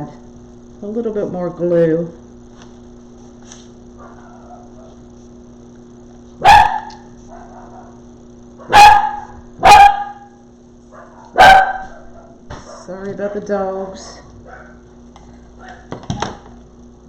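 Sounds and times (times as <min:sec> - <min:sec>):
faint electrical hum: 0:00.0 - 0:17.0
dog barking: 0:04.0 - 0:05.0, 0:06.4 - 0:08.0, 0:08.6 - 0:12.9, 0:14.4 - 0:14.9, 0:15.6 - 0:15.9.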